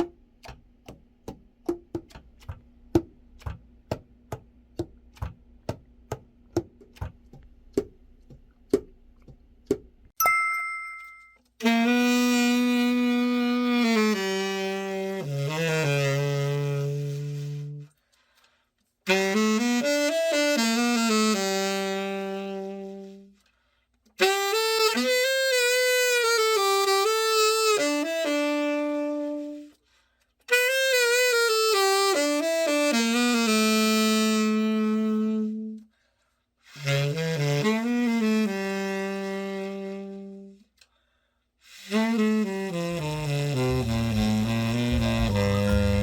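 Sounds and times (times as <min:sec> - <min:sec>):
solo tenor saxophone melody: 0:11.6 - 0:17.9, 0:19.1 - 0:23.4, 0:24.2 - 0:29.8, 0:30.5 - 0:35.9, 0:36.6 - 0:40.8, 0:41.6 - 0:46.0.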